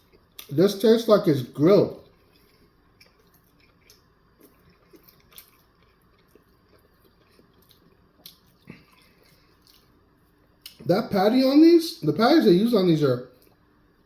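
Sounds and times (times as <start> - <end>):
person chewing food: 0.0 - 0.6, 1.9 - 10.9
wet mouth clicks and smacks: 7.6 - 9.9.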